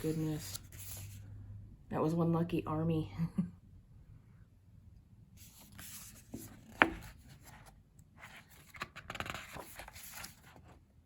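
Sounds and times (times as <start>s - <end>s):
glossy pages rustling: 0.0s - 1.2s, 5.4s - 10.8s.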